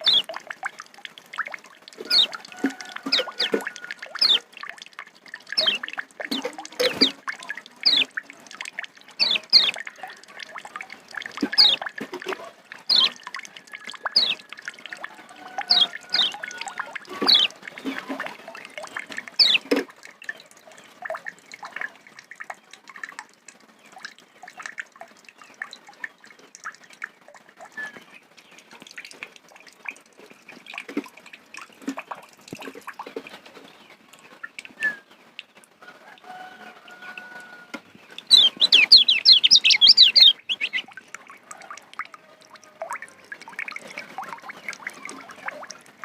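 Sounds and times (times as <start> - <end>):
bird twittering chips: 0.0 - 0.4, 2.0 - 4.5, 5.6 - 7.2, 7.8 - 8.1, 9.2 - 9.8, 11.4 - 11.9, 12.9 - 14.5, 15.7 - 18.1, 19.4 - 19.7, 38.3 - 40.9.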